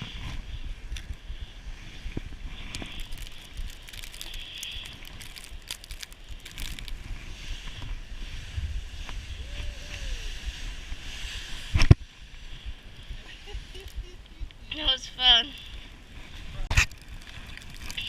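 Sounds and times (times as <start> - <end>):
wind on microphone: 0.0 - 18.0
snow crunching: 0.1 - 9.4, 15.0 - 18.0.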